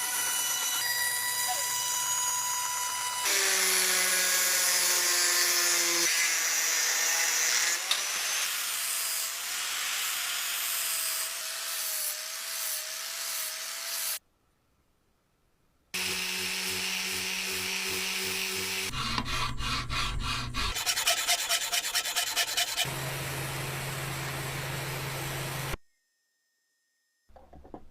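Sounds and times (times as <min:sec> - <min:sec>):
electric power tool motor hum: 0:16.0 - 0:18.9
rubbing grinding noise: 0:16.8 - 0:22.9.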